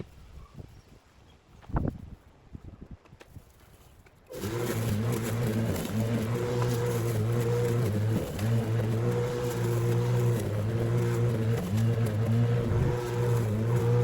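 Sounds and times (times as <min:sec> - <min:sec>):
electric lawn mower humming: 0:04.3 - 0:14.0.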